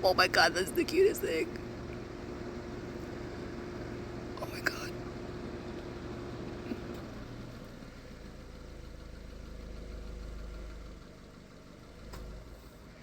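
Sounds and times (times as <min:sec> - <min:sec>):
faint steady hum: 0:00.0 - 0:07.2
low steady rumble: 0:00.0 - 0:13.0.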